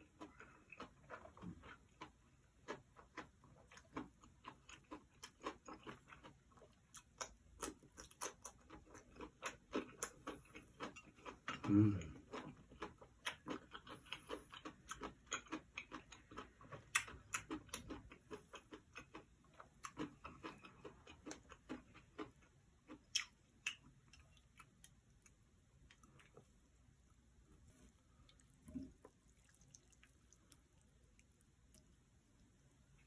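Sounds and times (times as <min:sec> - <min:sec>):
wet mouth chewing clicks: 0:22.9 - 0:25.0.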